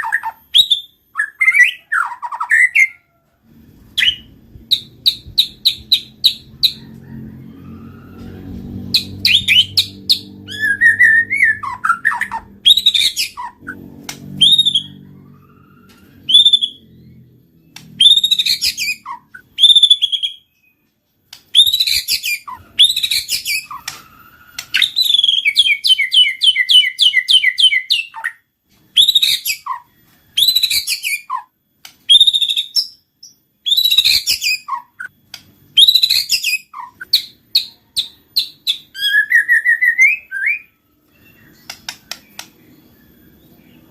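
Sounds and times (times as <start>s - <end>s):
rapidly repeated bird notes: 8.7s - 43.9s
bird singing whistled phrases: 9.0s - 15.0s, 21.5s - 28.4s, 33.6s - 35.1s, 35.8s - 42.4s.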